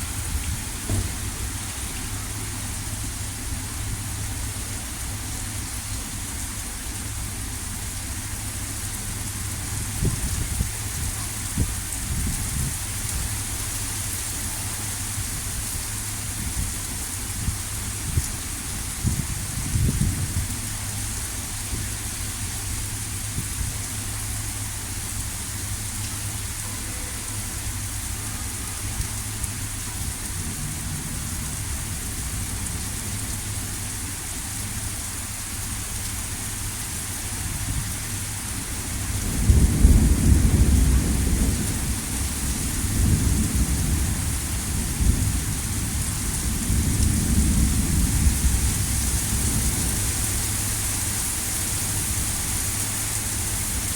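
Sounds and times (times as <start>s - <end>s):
thunder rumbling: 0.0s - 13.8s, 37.3s - 51.0s
heavy rain hissing: 0.0s - 53.9s.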